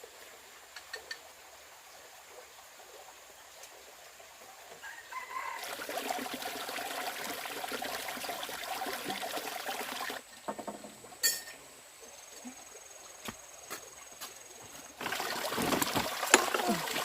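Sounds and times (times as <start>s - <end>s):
water pouring: 5.2s - 10.7s, 14.9s - 17.0s.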